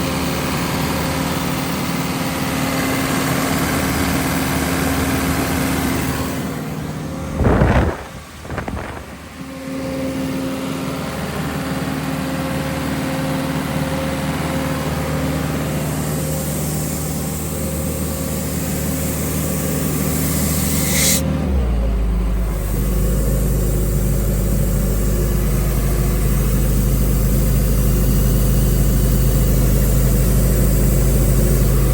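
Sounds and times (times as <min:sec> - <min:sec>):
diesel air compressor running: 0:00.0 - 0:31.9
brief loud burst: 0:07.3 - 0:09.4.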